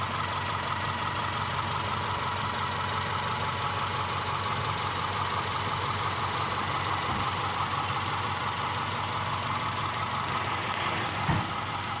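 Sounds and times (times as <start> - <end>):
car engine idling: 0.0 - 12.0
short low thump: 11.2 - 11.6.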